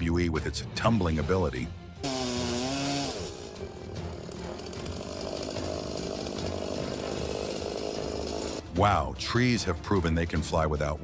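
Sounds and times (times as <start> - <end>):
background music: 0.0 - 11.0
chainsaw running: 2.0 - 8.7.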